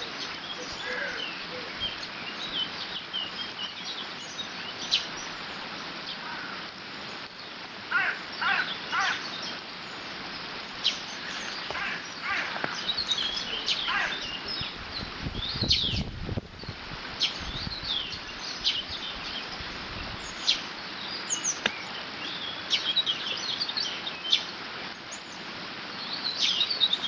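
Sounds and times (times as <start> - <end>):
water rushing over dam: 0.0 - 15.8
loud bird calls: 0.0 - 25.4
small birds chirping: 0.0 - 27.0.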